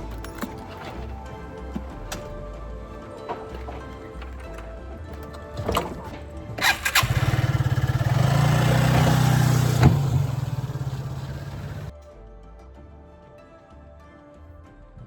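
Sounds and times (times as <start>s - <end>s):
motor pulsing hum: 7.3s - 11.9s.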